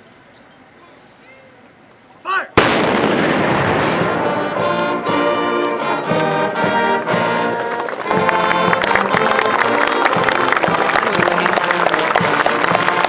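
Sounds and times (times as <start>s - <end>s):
brass band playing: 2.6s - 13.0s.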